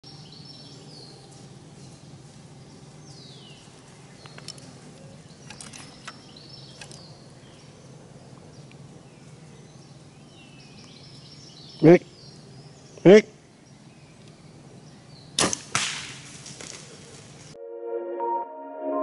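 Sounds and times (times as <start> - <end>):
songbirds singing: 0.0 - 17.6
sharp clicks: 5.4 - 7.1.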